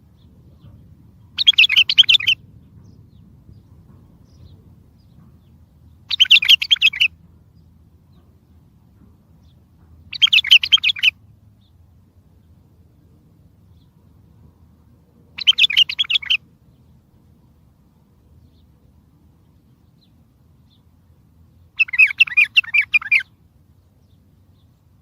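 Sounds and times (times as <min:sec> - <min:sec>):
bulbul song: 0:00.1 - 0:03.1, 0:04.2 - 0:08.2, 0:09.5 - 0:11.8, 0:15.3 - 0:18.8, 0:19.4 - 0:25.0.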